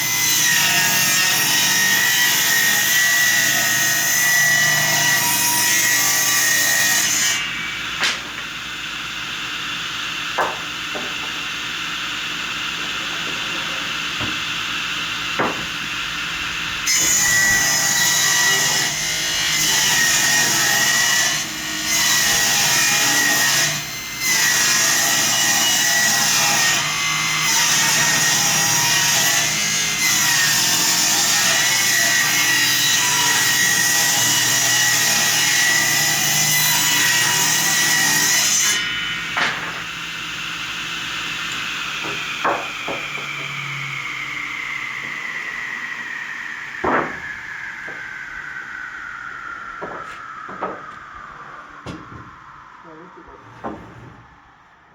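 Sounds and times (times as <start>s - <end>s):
power saw cutting wood: 0.0s - 51.1s
sharp knocks: 10.4s - 11.5s, 15.4s - 15.9s, 42.0s - 43.7s, 46.8s - 48.0s.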